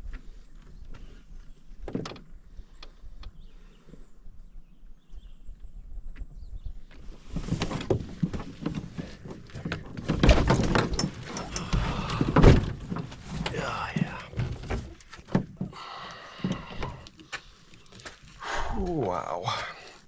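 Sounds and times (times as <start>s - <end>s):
rustling: 7.1s - 15.6s.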